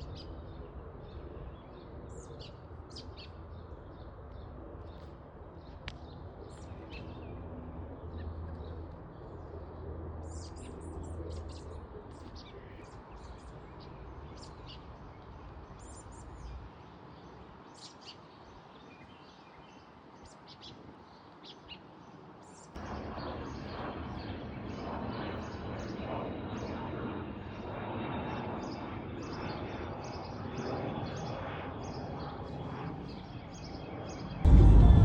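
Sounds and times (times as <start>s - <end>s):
steady rushing noise: 34.5s - 35.0s.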